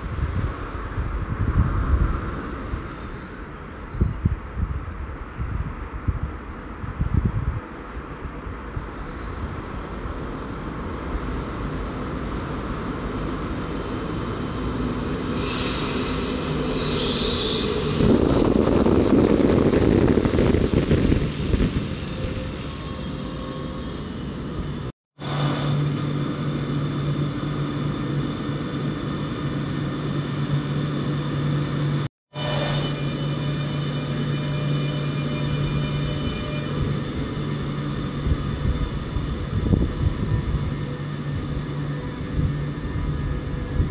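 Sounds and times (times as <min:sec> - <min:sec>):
train wheels rumbling: 0:10.9 - 0:29.6
high wheel squeal: 0:15.3 - 0:24.7, 0:32.3 - 0:39.0.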